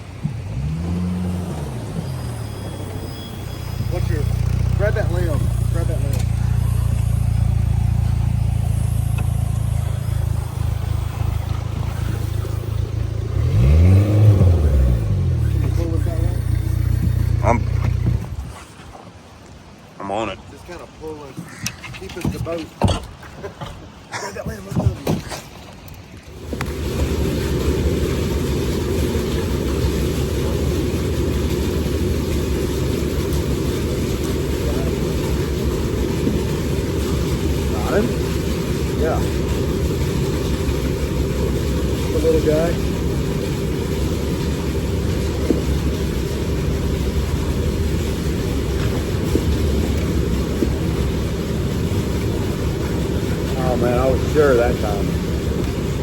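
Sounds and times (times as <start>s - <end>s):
boat motor idling and revving: 0.0s - 56.0s.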